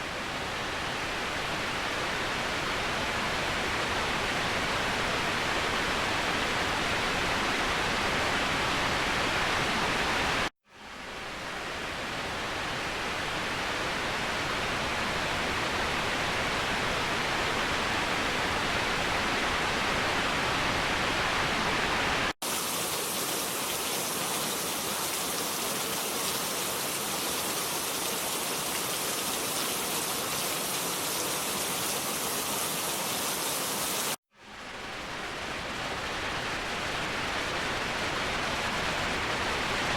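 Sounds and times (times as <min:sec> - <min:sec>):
waterfall rushing: 0:22.4 - 0:34.2.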